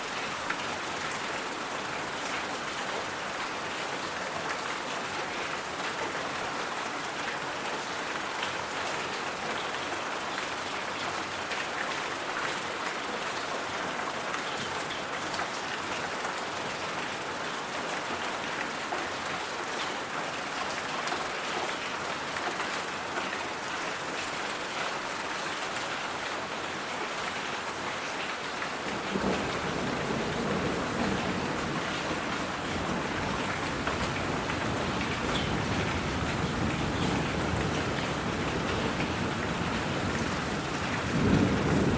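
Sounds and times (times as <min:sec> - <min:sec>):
rain-like hiss: 0:17.6 - 0:41.9.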